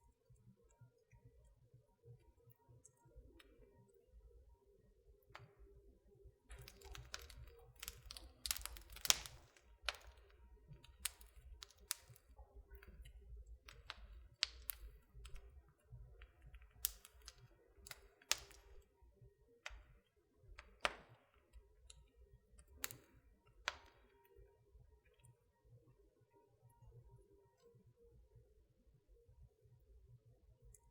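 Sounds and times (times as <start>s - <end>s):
wood fire crackling: 6.4s - 19.0s, 19.6s - 24.2s.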